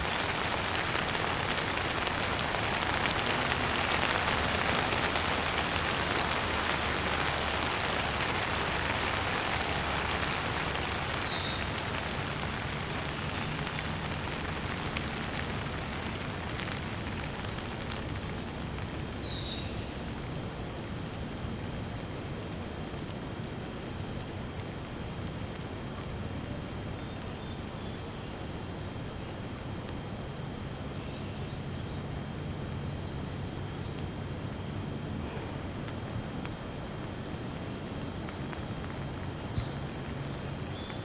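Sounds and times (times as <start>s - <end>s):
steady rain falling: 0.0s - 41.0s
bird chirp: 11.1s - 12.0s.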